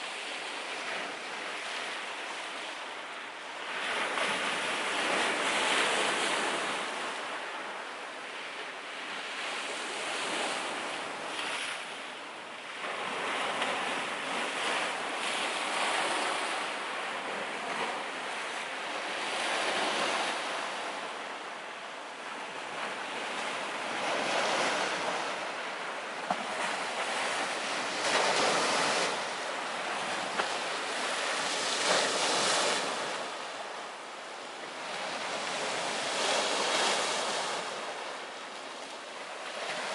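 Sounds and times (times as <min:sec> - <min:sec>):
sea surf rushing: 0:12.8 - 0:39.9.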